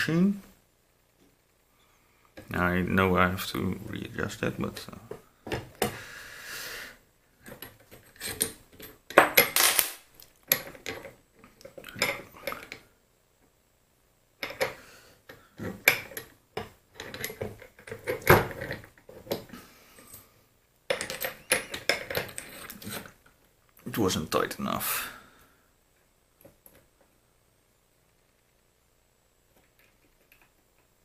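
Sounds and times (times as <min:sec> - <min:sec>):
metal parts clinking and knocking: 0:07.4 - 0:11.2, 0:15.6 - 0:19.5, 0:20.9 - 0:23.1.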